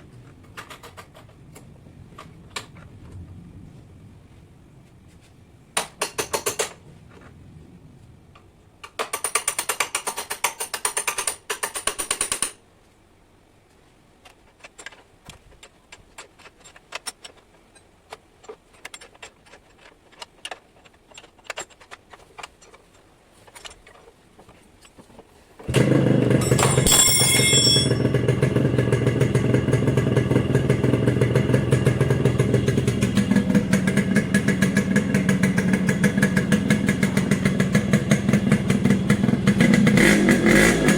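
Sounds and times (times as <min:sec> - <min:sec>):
motorcycle engine idling: 0:25.7 - 0:40.9.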